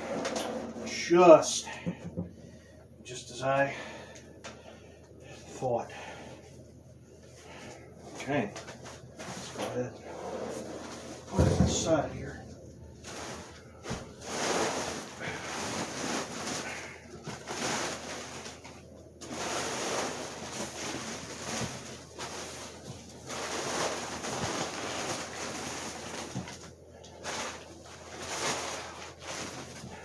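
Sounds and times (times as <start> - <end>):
packing material rustling: 10.5 - 30.0.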